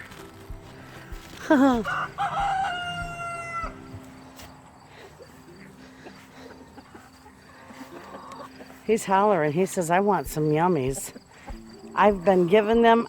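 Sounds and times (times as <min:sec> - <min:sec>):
rooster crowing: 0:01.8 - 0:03.9.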